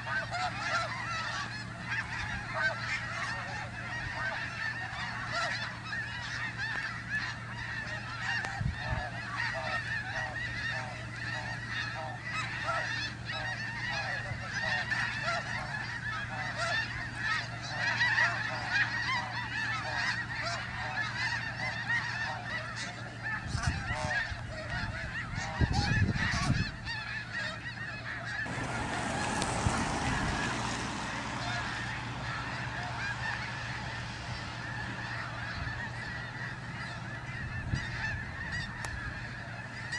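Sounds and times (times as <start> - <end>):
flock of geese honking: 0.0 - 39.9
broad rushing noise: 28.4 - 39.9.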